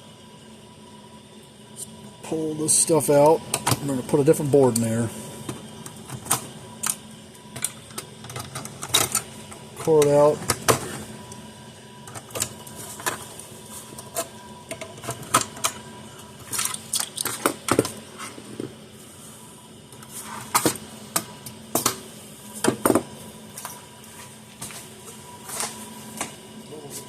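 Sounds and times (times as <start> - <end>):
small parts and tools clattering: 16.4 - 17.9.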